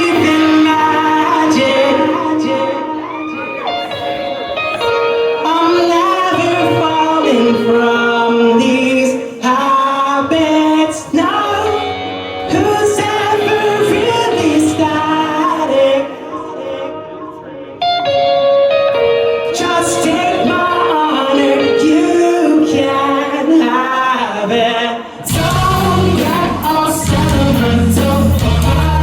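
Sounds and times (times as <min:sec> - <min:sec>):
amplified guitars: 0:00.0 - 0:29.0
person singing: 0:00.0 - 0:29.0
drums: 0:25.2 - 0:29.0.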